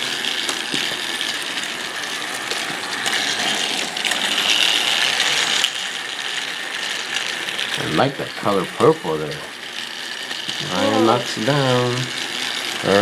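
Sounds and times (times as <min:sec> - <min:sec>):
toy train motor whirring: 0:00.0 - 0:13.0
wheels clicking over track joints: 0:00.0 - 0:13.0.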